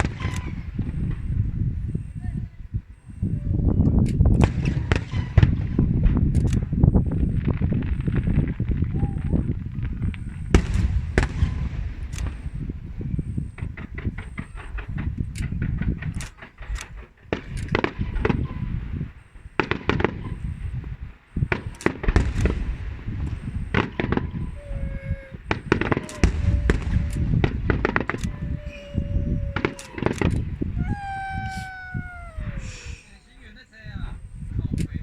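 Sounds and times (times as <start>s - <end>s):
crackling reports: 19.2s - 33.2s
fireworks bursting with sharp bangs: 21.5s - 32.8s.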